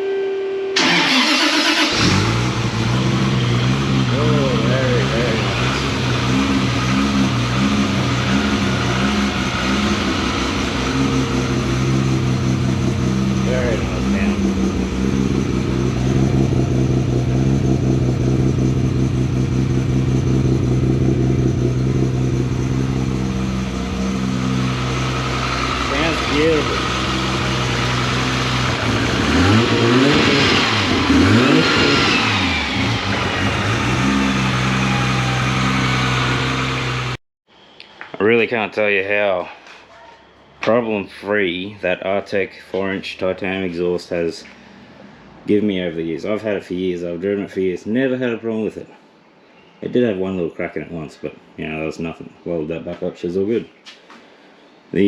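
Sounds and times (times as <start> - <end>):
car engine idling through exhaust: 1.9 - 37.2.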